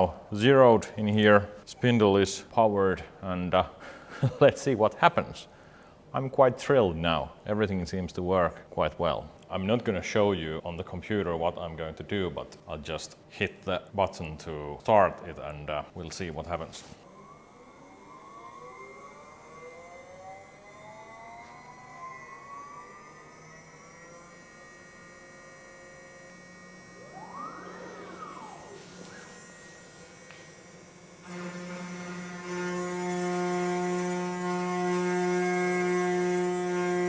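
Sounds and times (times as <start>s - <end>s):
spindle humming: 17.0s - 37.0s
stepper motors whining: 17.0s - 37.0s.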